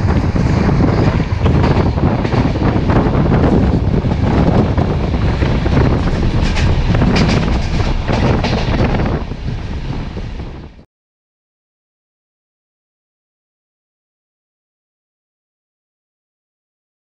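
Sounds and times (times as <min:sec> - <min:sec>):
sharp train clatters: 0:00.0 - 0:10.8
train wheels rumbling on rails: 0:00.0 - 0:10.8
wind on microphone: 0:00.0 - 0:10.8.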